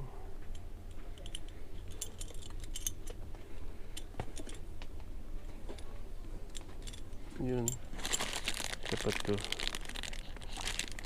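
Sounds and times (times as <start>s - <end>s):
small metal parts clinking: 1.2s - 3.2s.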